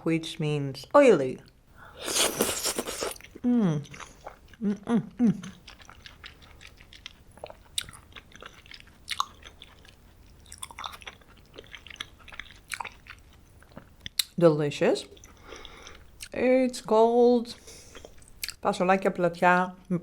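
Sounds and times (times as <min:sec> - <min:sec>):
person chewing food: 0:01.8 - 0:14.3, 0:15.1 - 0:16.4, 0:17.6 - 0:18.6.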